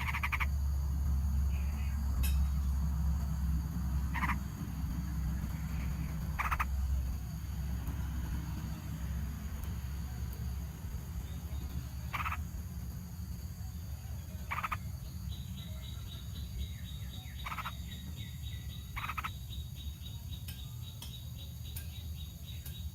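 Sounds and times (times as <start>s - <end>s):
high repeated chirps: 0.0s - 0.5s, 6.2s - 6.8s
rasping animal calls: 0.0s - 0.6s, 4.0s - 4.8s, 5.5s - 6.9s, 12.1s - 12.5s, 14.4s - 14.9s, 17.3s - 17.9s, 18.9s - 19.4s
steady low rumble: 0.0s - 22.7s.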